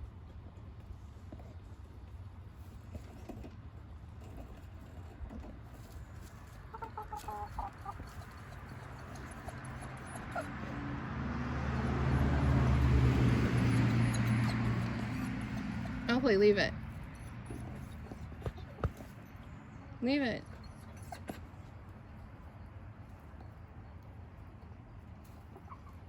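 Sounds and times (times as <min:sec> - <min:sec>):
chickens clucking: 0:06.5 - 0:10.6.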